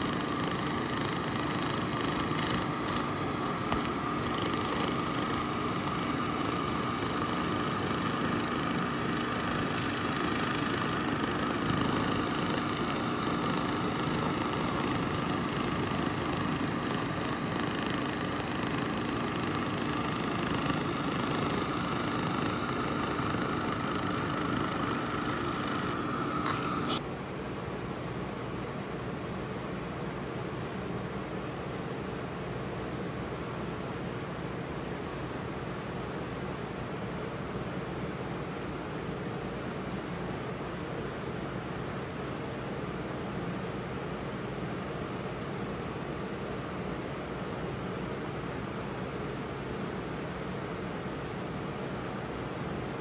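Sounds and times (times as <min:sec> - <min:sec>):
laser rust remover hiss and whine: 0:00.0 - 0:27.0
machine hissing: 0:00.0 - 0:27.0.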